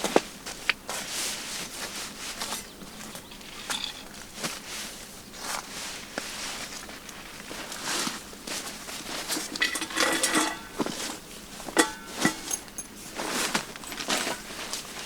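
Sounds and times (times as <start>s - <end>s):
rustling and knocks of gear: 0.0s - 15.0s
metallic clinks: 9.5s - 11.0s, 11.7s - 13.1s.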